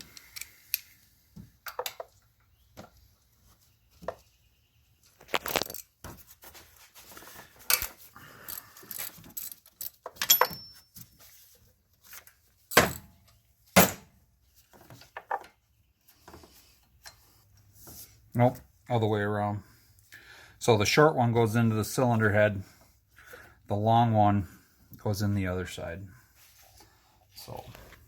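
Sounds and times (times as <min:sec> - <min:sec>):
metal hand tools clanking: 0:07.7 - 0:11.0.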